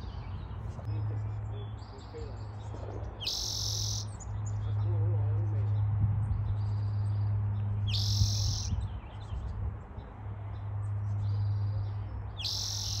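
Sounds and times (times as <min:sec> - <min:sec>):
songbird buzzy trill: 0:03.2 - 0:04.2, 0:07.9 - 0:08.8, 0:12.4 - 0:13.0.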